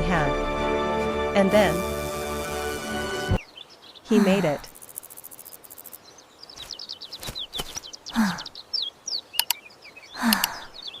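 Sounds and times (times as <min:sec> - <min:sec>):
small birds chirping: 0:03.2 - 0:11.0
sharp clicks: 0:09.4 - 0:09.6, 0:10.2 - 0:10.6.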